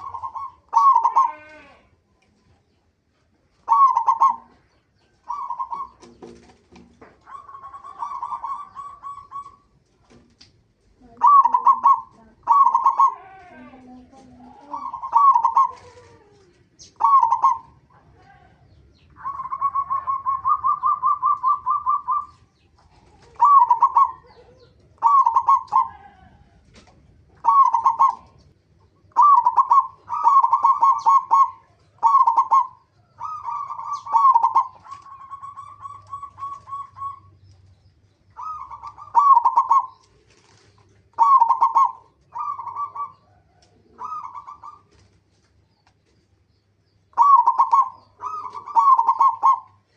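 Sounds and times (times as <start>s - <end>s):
dove cooing: 0.0s - 1.9s, 3.6s - 10.2s, 11.0s - 37.6s, 38.3s - 45.1s, 47.1s - 49.9s.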